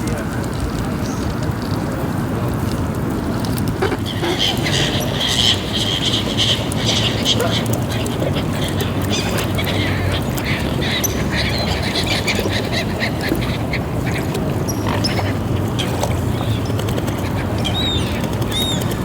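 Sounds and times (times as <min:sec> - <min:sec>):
ducks quacking: 0:03.7 - 0:19.0
waterfowl calls: 0:03.7 - 0:19.0
high bending bird calls: 0:04.0 - 0:19.0.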